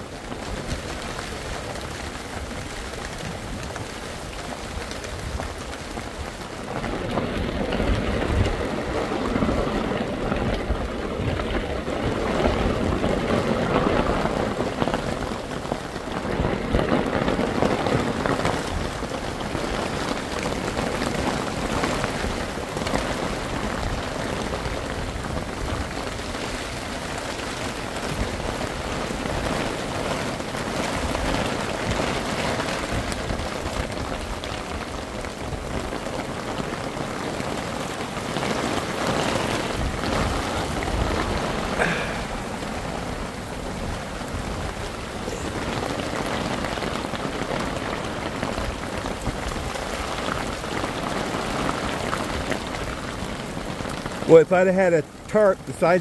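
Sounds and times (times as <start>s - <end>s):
heavy rain on ground and tarp: 0.0s - 56.0s.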